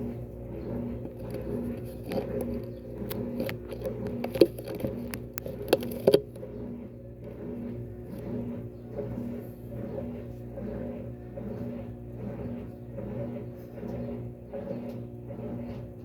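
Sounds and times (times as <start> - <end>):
washing machine spin hum: 0.0 - 16.0.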